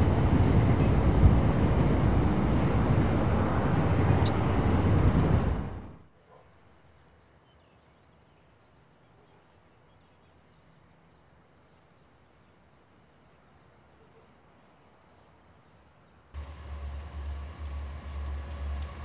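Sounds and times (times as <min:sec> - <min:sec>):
distant birds chirping: 0:00.0 - 0:06.0
faint outdoor hiss: 0:00.0 - 0:19.0.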